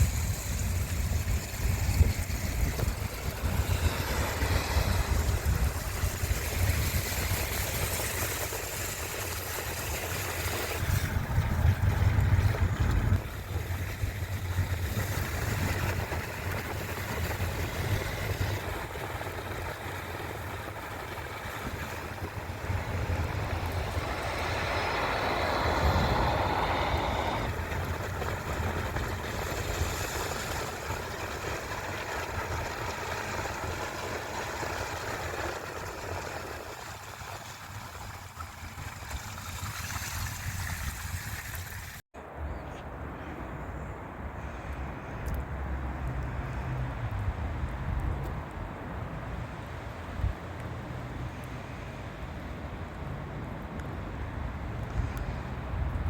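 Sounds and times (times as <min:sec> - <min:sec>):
car engine rumble: 0:00.0 - 0:36.8
road and tyre noise: 0:00.0 - 0:56.0.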